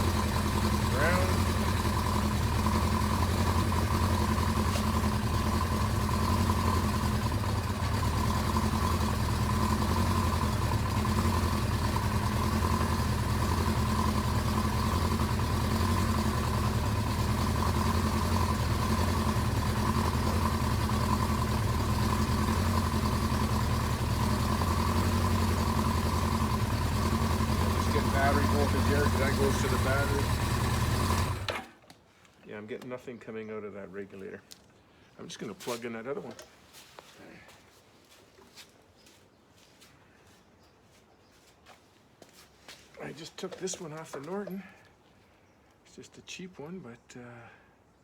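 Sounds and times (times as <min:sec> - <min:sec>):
motorcycle engine idling: 0:00.0 - 0:31.8.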